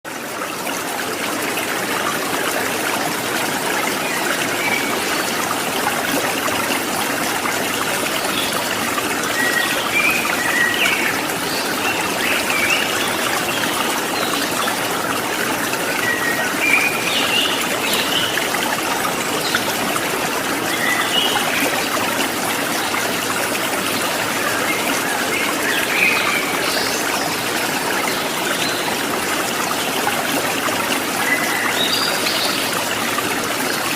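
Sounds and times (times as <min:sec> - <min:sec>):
water trickling and babbling: 0:00.1 - 0:33.9.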